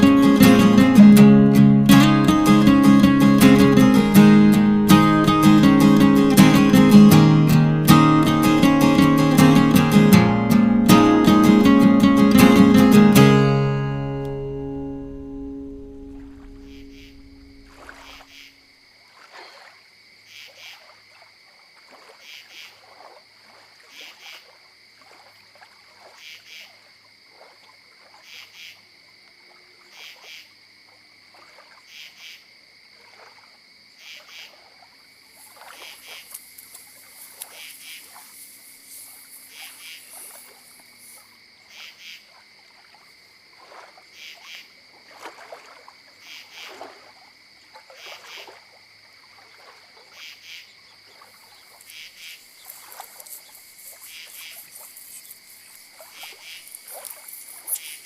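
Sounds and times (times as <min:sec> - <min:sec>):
faint high hiss: 0:35.2 - 0:42.3, 0:50.2 - 0:58.0.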